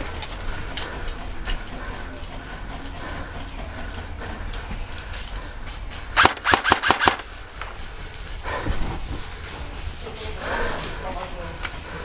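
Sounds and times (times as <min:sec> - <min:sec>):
airsoft gun firing burst: 0:06.2 - 0:07.3.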